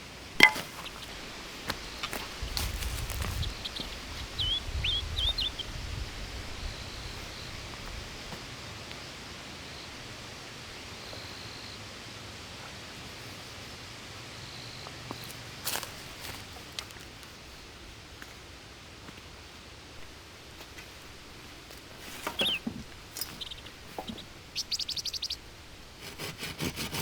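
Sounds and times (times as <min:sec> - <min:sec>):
bird chirps: 0:03.2 - 0:05.8, 0:22.2 - 0:25.5.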